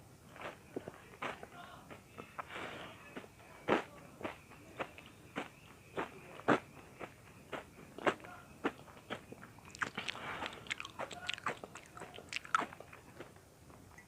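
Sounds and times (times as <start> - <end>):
crunchy chewing: 8.0 - 14.0.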